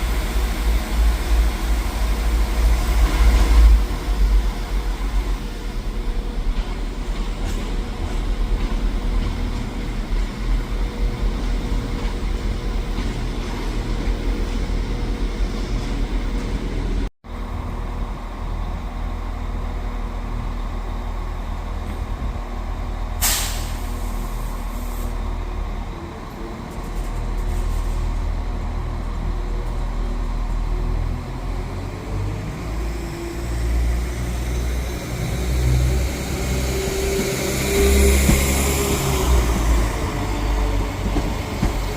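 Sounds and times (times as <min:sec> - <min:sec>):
train engine rumble: 0:00.0 - 0:41.9
air brake hiss: 0:23.2 - 0:25.2.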